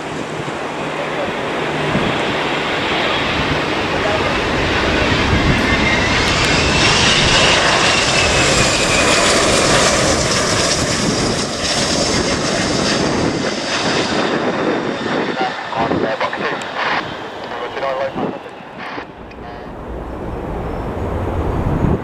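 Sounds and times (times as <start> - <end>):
high engine whine: 0.0 - 22.0
jet airliner passing: 0.0 - 22.0.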